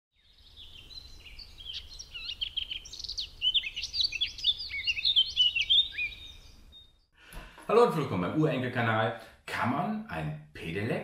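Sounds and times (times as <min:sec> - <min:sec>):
small birds chirping and twittering: 0:00.1 - 0:07.2.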